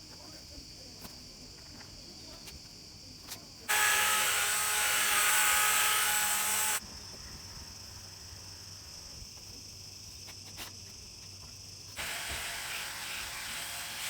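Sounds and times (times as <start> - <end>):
machine hissing with steady tones: 12.0 - 14.0.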